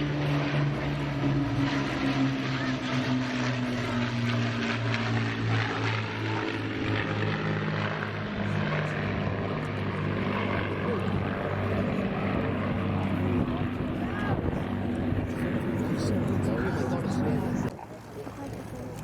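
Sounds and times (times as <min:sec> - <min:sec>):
propeller aircraft droning: 0:00.0 - 0:19.0.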